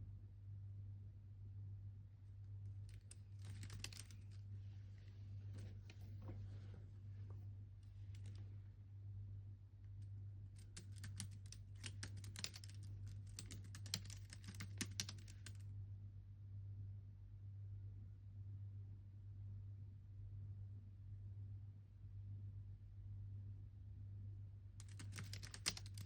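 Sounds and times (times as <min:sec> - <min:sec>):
typing on computer keyboard: 0:02.9 - 0:04.2, 0:10.6 - 0:15.6, 0:24.8 - 0:26.0.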